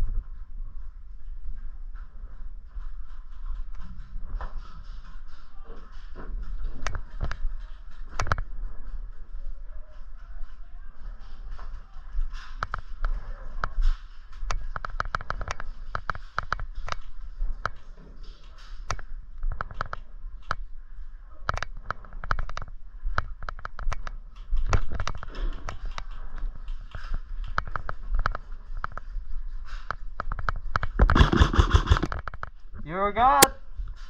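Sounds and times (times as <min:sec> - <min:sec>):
airsoft guns firing: 0:31.0 - 0:32.1.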